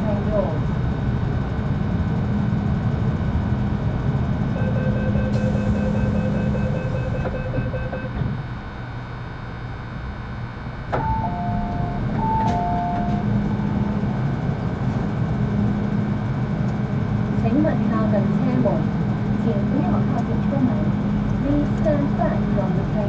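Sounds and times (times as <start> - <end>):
train equipment hum: 0.0 - 23.0
door warning beeping: 4.6 - 8.3, 10.9 - 13.8.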